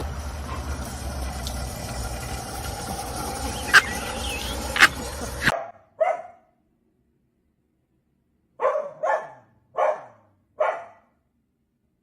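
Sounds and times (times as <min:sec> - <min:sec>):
dog barking: 0:03.6 - 0:06.5, 0:08.6 - 0:11.1.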